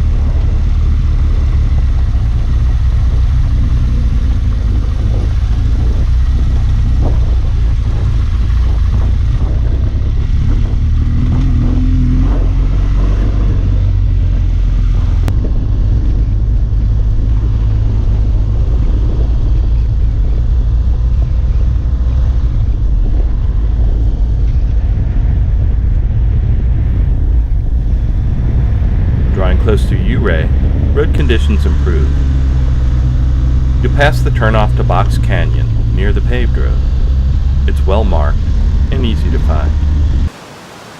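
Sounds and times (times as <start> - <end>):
motorcycle engine: 0.0 - 40.9
wind rumble on microphone: 0.0 - 40.9.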